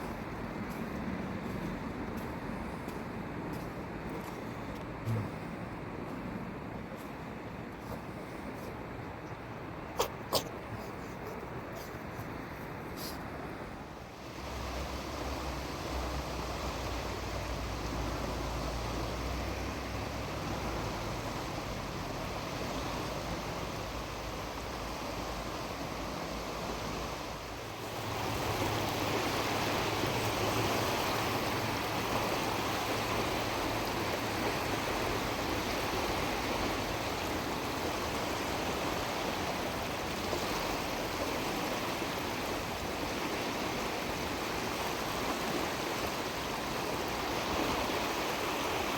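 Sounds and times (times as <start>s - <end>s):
ocean surf washing onto beach: 14.0s - 48.9s.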